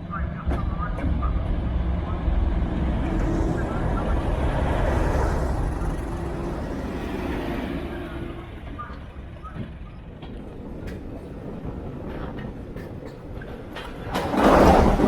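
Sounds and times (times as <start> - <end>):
motor vehicle passing: 1.9 - 8.7
steady hum: 2.0 - 8.6.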